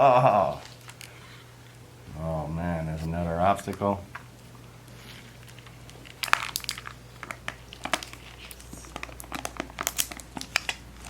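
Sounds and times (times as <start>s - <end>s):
plastic packaging crinkling: 0.2s - 11.0s.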